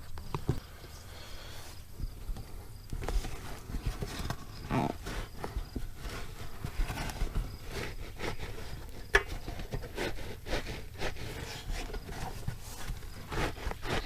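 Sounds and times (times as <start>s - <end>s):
tools knocking and scraping: 3.0s - 14.0s.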